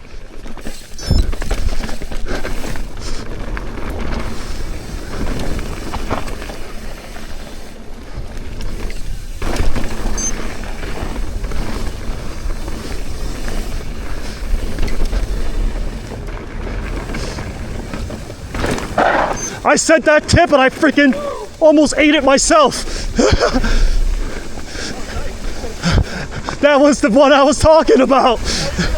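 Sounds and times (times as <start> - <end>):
bike tyres and frame rattling: 0.0 - 28.9
loud bike jolt: 8.7 - 26.2.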